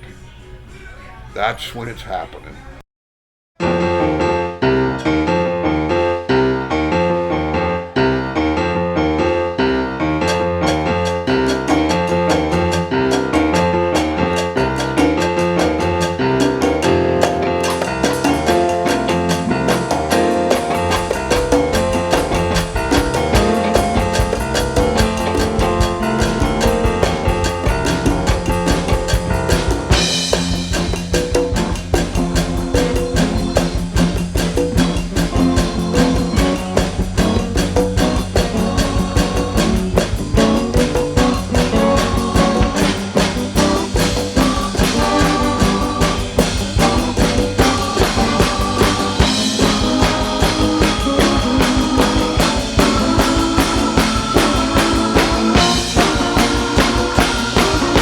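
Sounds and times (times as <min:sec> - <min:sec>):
live band playing: 0:03.6 - 0:58.0.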